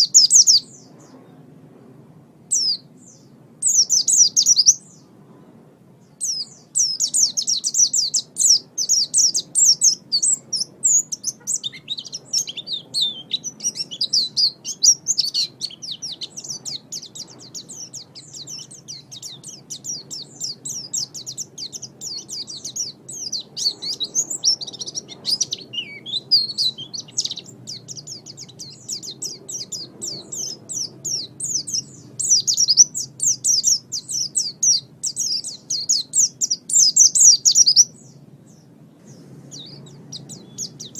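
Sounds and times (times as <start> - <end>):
bird twittering: 0.0 - 1.1, 2.5 - 5.1, 6.2 - 40.9.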